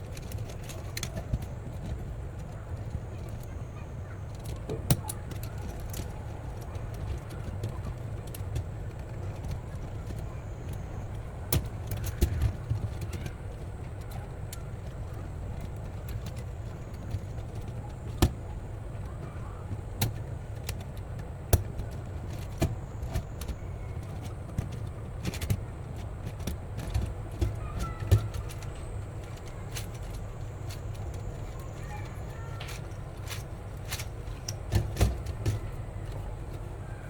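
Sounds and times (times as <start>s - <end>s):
sharp clicks and knocks: 15.6s - 36.7s.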